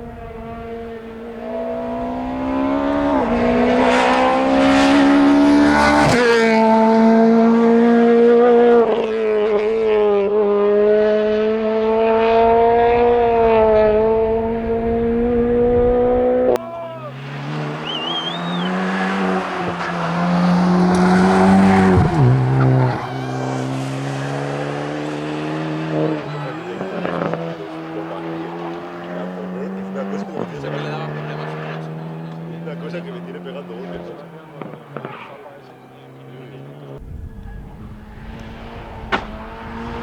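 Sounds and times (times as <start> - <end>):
rally car engine high-revving: 0.0 - 37.1, 37.8 - 40.0
lower rally car engine climbing: 0.0 - 40.0
brief tyre squeal: 17.1 - 20.2.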